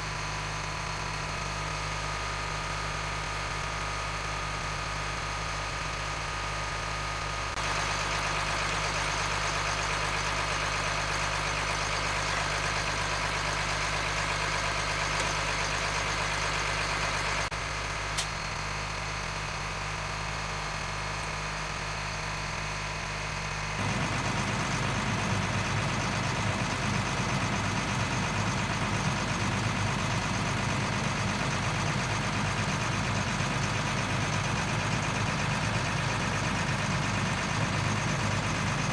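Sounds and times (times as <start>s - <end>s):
diesel truck engine idling: 0.0s - 38.9s
sharp click: 18.2s - 18.4s.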